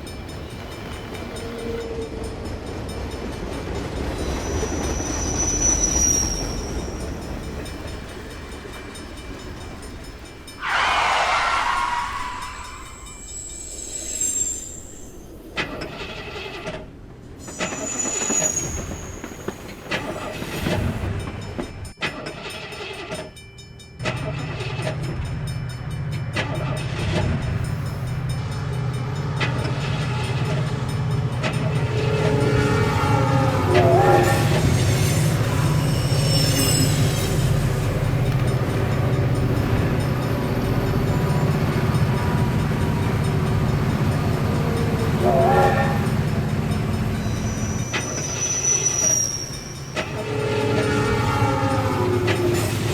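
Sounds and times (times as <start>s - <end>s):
train rumble: 0.0s - 52.9s
train horn: 10.6s - 13.2s, 31.6s - 36.9s, 44.5s - 46.6s, 50.0s - 52.9s
high whistle-like tones: 10.6s - 15.4s, 47.2s - 51.6s.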